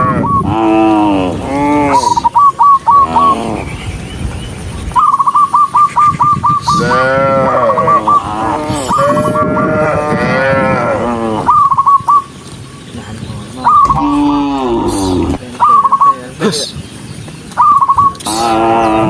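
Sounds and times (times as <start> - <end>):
cattle mooing: 0.0 - 2.2, 6.7 - 11.6, 13.8 - 15.4, 18.3 - 19.0.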